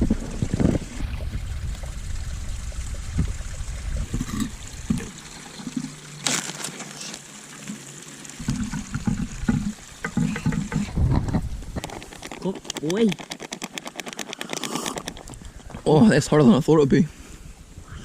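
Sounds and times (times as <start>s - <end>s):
wind rumble on microphone: 0.0s - 5.1s, 8.4s - 12.0s
water pouring and trickling: 0.0s - 16.6s.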